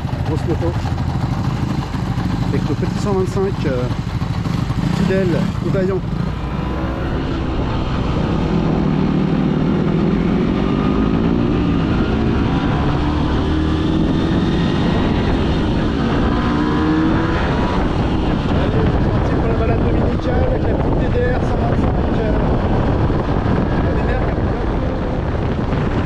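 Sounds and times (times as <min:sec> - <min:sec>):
small motorcycle engine running: 0:00.0 - 0:07.2.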